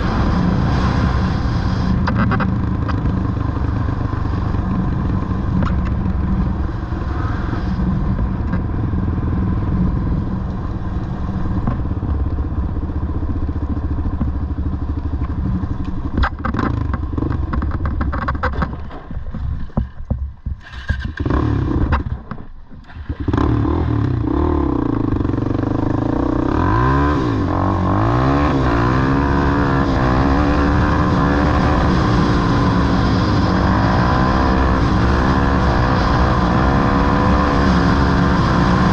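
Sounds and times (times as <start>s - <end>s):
off-road vehicle engines revving: 23.0s - 38.9s.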